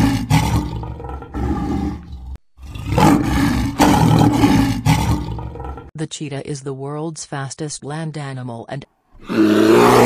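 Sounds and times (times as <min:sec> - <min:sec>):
big cat roaring: 0:00.0 - 0:05.9, 0:09.2 - 0:10.0.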